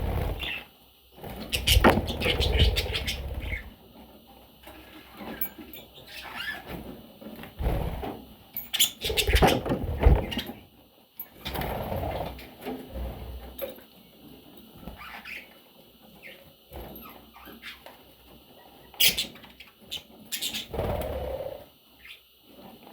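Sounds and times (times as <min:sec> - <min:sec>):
budgies scuffling and pecking: 0:00.0 - 0:03.8, 0:04.6 - 0:10.6, 0:16.1 - 0:21.3
thuds and knocks: 0:09.3 - 0:10.4.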